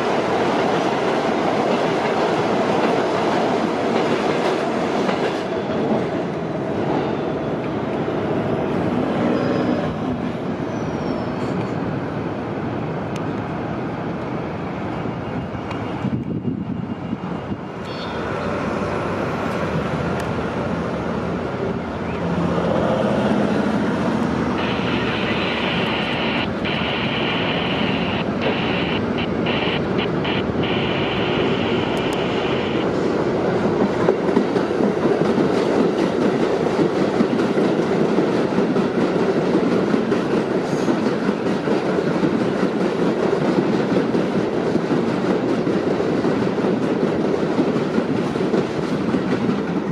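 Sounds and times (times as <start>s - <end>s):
subway train rumbling on rails: 0.0s - 49.9s
steady high-pitched tone: 24.6s - 33.0s.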